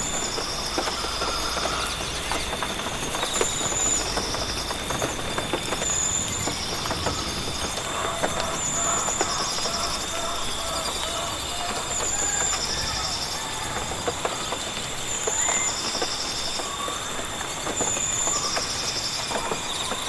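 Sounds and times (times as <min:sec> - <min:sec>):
high insect drone: 0:00.0 - 0:20.0
lower repeated calls: 0:05.9 - 0:20.0
high trilling calls: 0:07.3 - 0:14.5.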